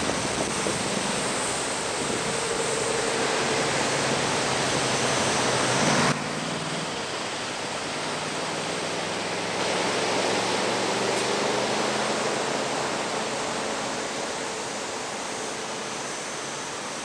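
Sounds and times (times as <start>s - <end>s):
heavy surf breaking on beach: 0.0s - 8.0s.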